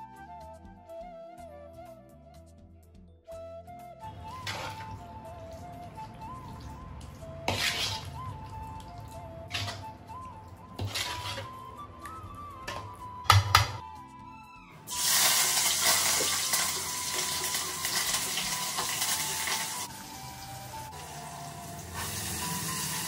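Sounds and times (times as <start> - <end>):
food sizzling in a pan: 14.9 - 23.0.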